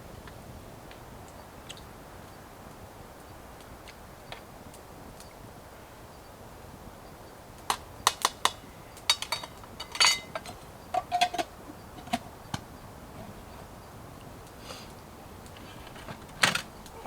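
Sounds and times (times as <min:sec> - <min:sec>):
utensil clinking against metal pot: 0:09.1 - 0:12.2.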